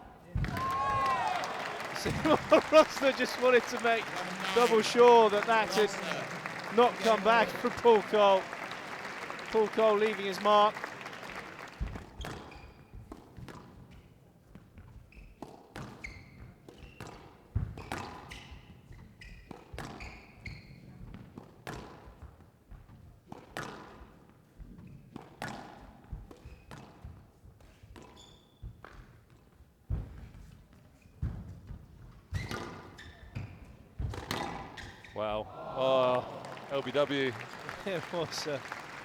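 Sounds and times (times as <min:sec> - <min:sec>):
ball hitting walls: 0:00.3 - 0:02.7.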